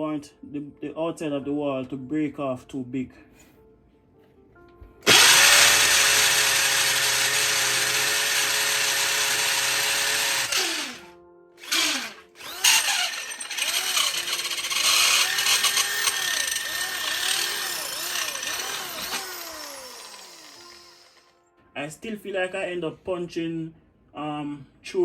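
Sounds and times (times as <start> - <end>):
electric drill boring into wall: 5.1 - 21.3.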